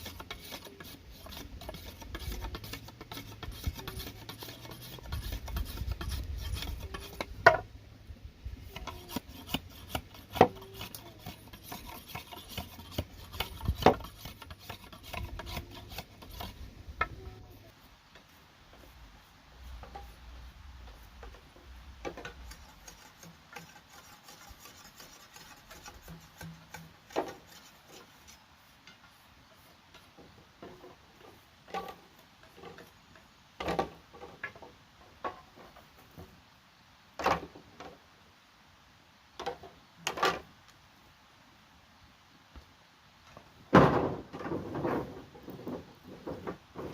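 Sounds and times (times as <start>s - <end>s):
light rubbing and scraping: 0.0s - 7.8s, 8.4s - 36.4s, 43.3s - 46.9s
wood and bamboo knocking: 1.7s - 7.7s, 8.7s - 17.2s, 43.7s - 46.9s.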